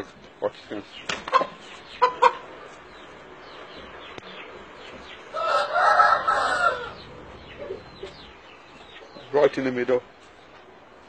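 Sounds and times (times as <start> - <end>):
rooster crowing: 5.3 - 7.8.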